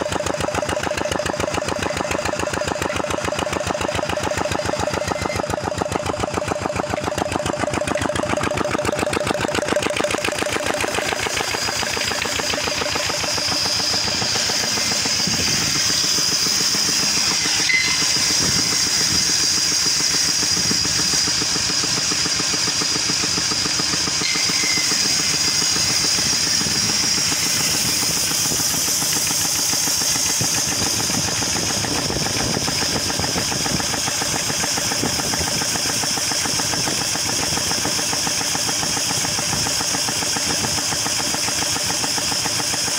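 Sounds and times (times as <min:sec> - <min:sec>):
engine running steadily: 0:00.0 - 0:42.9
thin high-pitched whine: 0:11.3 - 0:21.4, 0:22.0 - 0:29.5.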